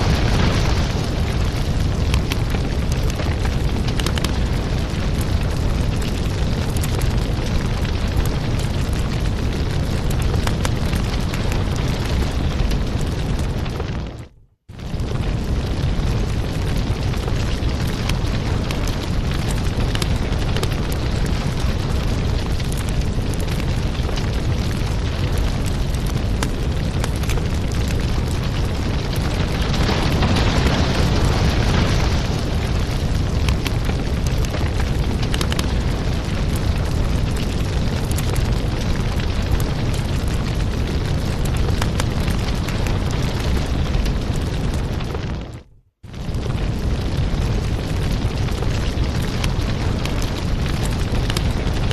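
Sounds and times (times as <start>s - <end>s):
low rumble: 0.0s - 51.8s
wood fire crackling: 0.0s - 51.9s.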